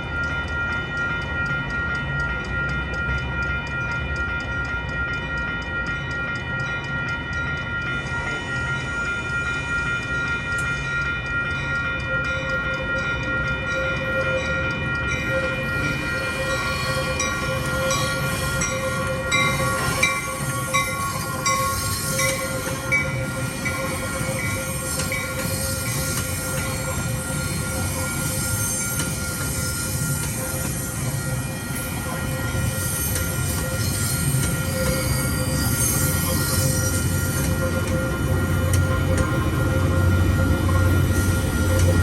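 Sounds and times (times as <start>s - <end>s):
train rumbling past: 7.3s - 42.0s.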